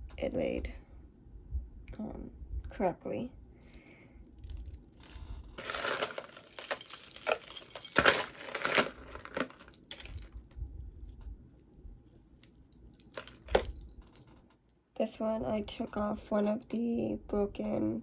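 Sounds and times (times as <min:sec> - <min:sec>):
crinkling and rustling: 0:03.6 - 0:14.8.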